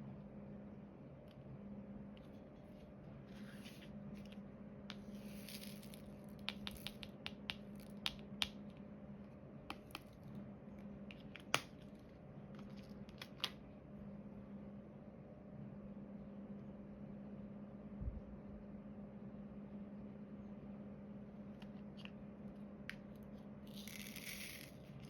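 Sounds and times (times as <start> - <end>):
steady low hum: 0.0 - 25.0
drill pen clicking and tapping: 6.4 - 8.6.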